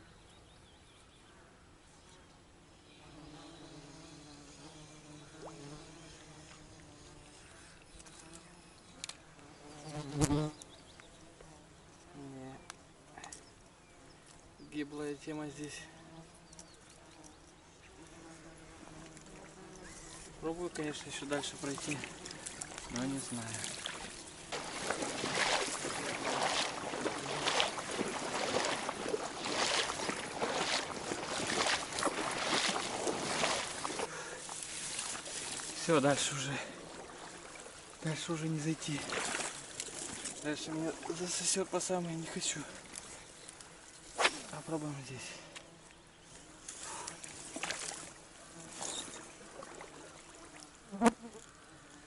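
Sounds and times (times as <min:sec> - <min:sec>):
water sloshing with steps: 0:20.6 - 0:37.9, 0:38.8 - 0:41.6, 0:47.4 - 0:48.1.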